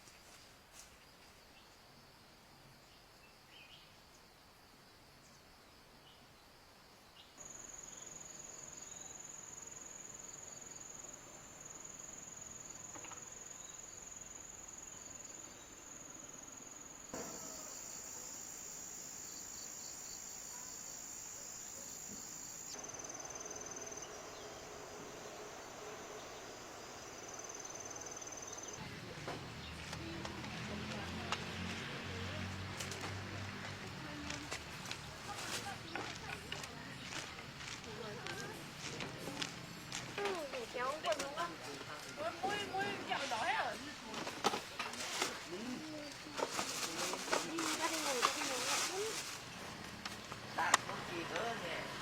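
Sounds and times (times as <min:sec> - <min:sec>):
insects trilling: 0:01.3 - 0:28.9.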